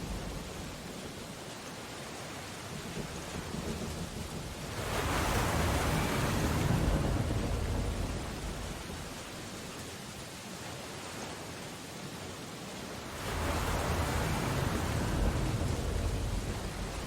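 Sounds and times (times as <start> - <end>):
rain on window glass: 0.0 - 10.7
rushing surge with low rumble: 4.0 - 9.5, 13.2 - 17.0.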